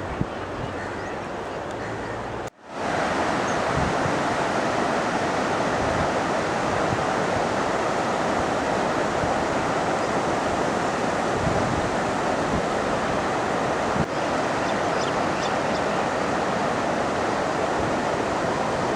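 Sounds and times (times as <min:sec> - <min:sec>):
fast-flowing river water rushing: 0:00.0 - 0:18.9.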